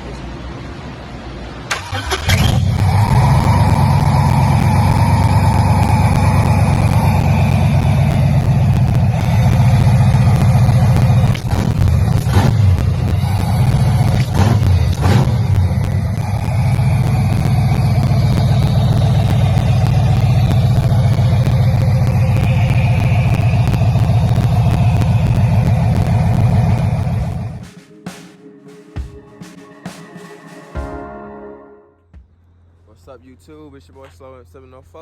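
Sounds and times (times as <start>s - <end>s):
car engine rumbling: 0.0s - 27.7s.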